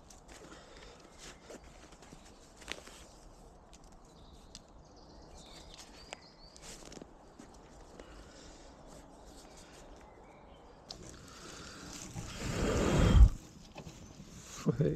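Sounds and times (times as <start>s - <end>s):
twigs snapping: 0.0s - 8.1s.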